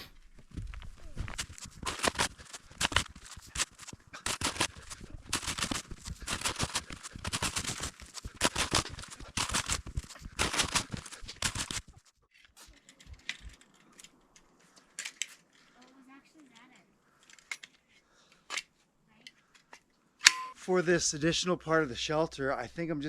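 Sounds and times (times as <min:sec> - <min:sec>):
footsteps crunching through snow: 0:00.0 - 0:12.0.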